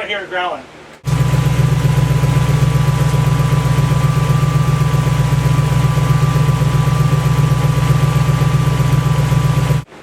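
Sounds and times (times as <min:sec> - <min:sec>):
car engine idling: 0:01.0 - 0:09.9
thin steady whine: 0:01.0 - 0:09.9.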